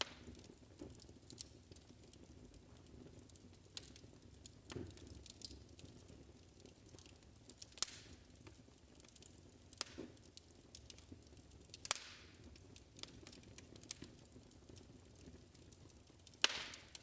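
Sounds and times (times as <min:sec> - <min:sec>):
wood fire crackling: 0:00.0 - 0:17.0
loud fire pops: 0:07.6 - 0:08.5, 0:09.7 - 0:11.0, 0:11.8 - 0:14.1, 0:16.2 - 0:17.0.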